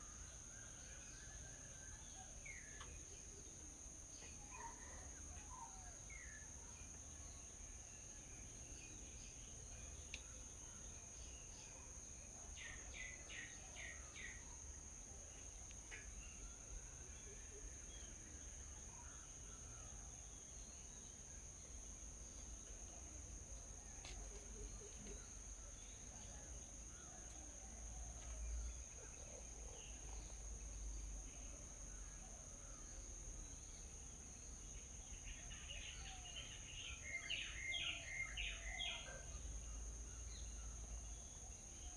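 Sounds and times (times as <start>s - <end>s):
faint birds chirping: 0.0s - 41.9s.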